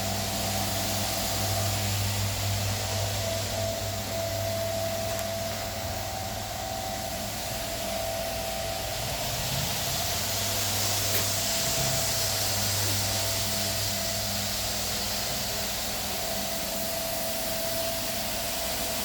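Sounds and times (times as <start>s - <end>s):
machine humming and whining: 0.0s - 19.0s.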